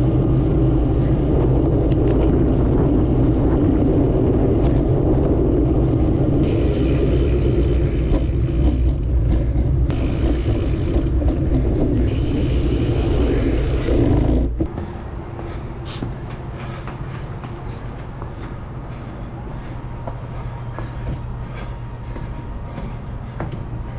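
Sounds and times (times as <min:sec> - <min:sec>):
wind buffeting microphone: 0:00.0 - 0:15.5
road noise: 0:00.0 - 0:23.9.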